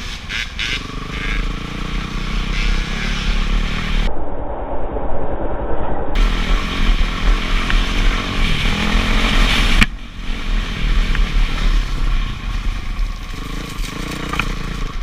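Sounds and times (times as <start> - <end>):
dirt bike engine running: 0.3 - 4.1, 6.2 - 15.0
wind noise: 2.6 - 13.6.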